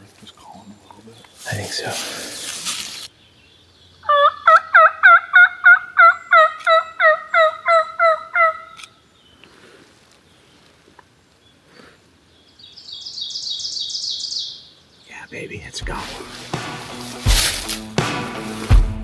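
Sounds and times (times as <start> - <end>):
turkey call yelps: 4.0 - 9.0
small bird chirping: 11.4 - 15.7.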